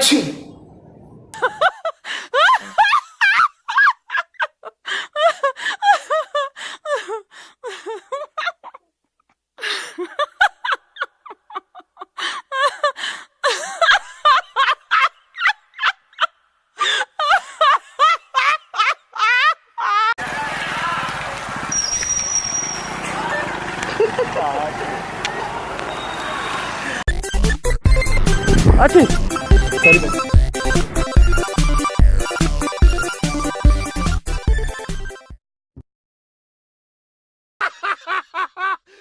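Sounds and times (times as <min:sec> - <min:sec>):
high-pitched giggling: 0:29.8 - 0:30.2.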